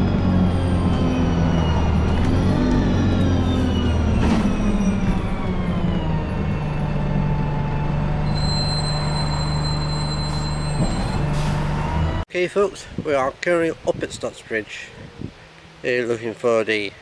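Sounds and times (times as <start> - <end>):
bus engine whine: 0.0 - 12.3.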